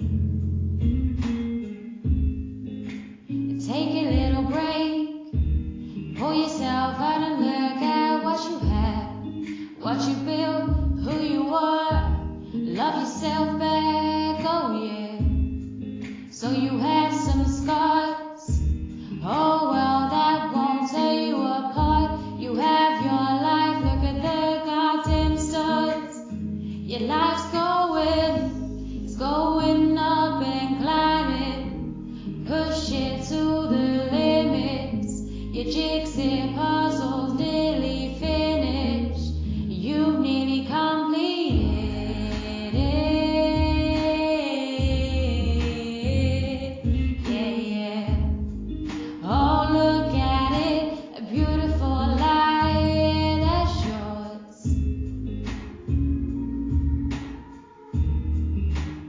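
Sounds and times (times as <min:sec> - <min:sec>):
backing track music: 0:00.0 - 0:30.6, 0:46.8 - 0:59.0
woman singing: 0:03.6 - 0:15.6, 0:16.2 - 0:54.8, 0:55.5 - 0:59.0.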